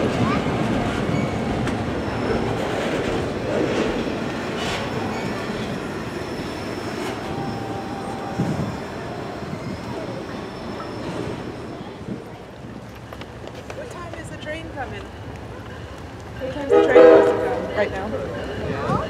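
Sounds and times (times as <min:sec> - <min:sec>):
rail clicks: 0:00.0 - 0:19.0
train rumbling past: 0:00.0 - 0:19.0
faint wheel squeal: 0:04.8 - 0:12.0.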